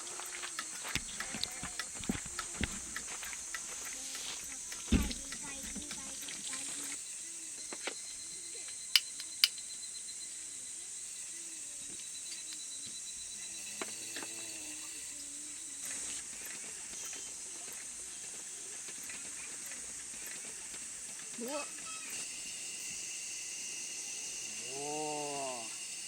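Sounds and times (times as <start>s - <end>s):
cicadas calling: 0.0s - 26.0s
sharp clicks: 0.2s - 7.0s, 8.7s - 9.6s.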